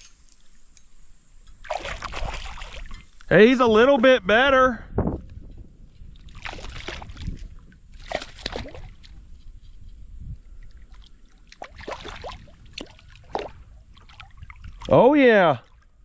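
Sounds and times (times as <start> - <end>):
water sloshing and splashing: 1.5 - 3.2, 6.1 - 9.3, 10.5 - 15.0, 15.6 - 16.0.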